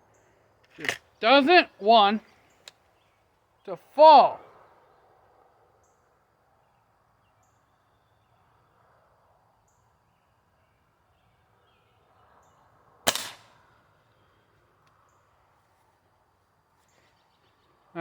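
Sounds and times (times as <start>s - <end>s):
faint outdoor background: 0.0s - 18.0s
pellet rifle shot: 13.1s - 13.6s.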